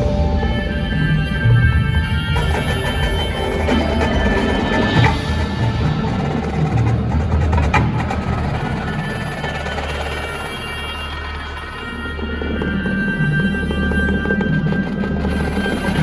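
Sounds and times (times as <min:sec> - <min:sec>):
marching band drums: 0:02.4 - 0:10.4
held band chords: 0:02.4 - 0:12.6.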